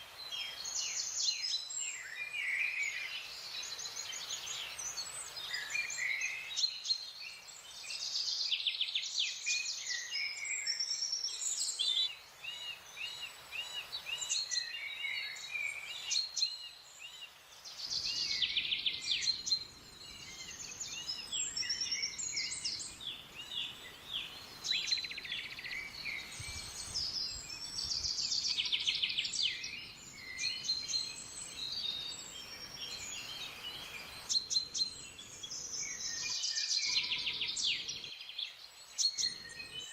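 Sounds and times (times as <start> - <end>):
birds singing: 0.0 - 39.9.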